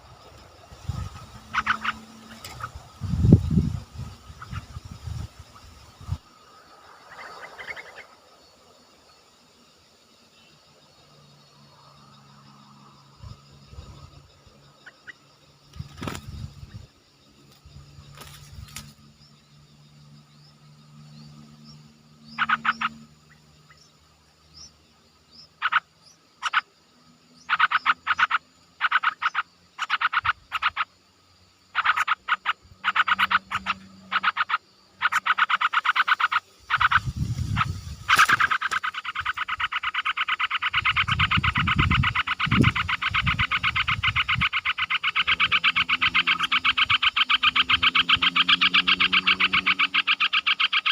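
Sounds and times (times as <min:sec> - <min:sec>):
animal buzzing trills: 0:00.0 - 0:06.2, 0:31.7 - 0:50.9.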